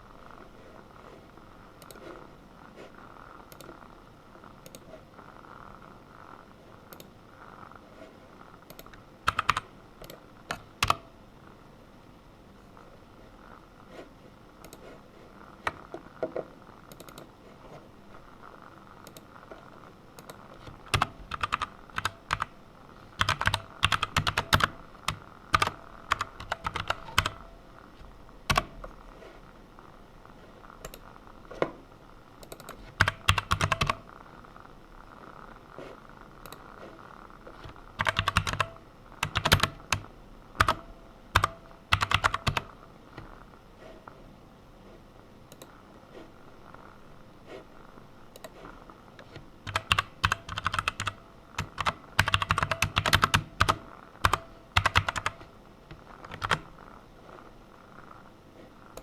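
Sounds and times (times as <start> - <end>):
computer keyboard typing: 8.7 - 11.1, 16.9 - 17.3, 19.0 - 19.6, 20.2 - 22.5, 23.2 - 27.5, 28.4 - 29.0, 32.4 - 34.1, 37.5 - 42.8, 49.2 - 56.7.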